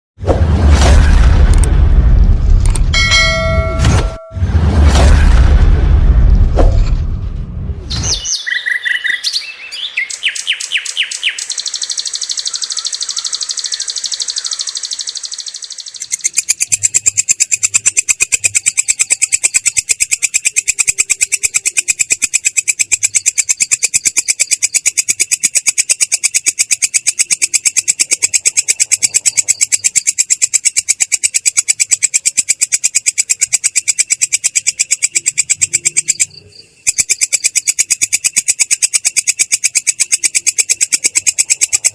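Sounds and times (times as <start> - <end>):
grasshopper stridulating: 10.2 - 41.9.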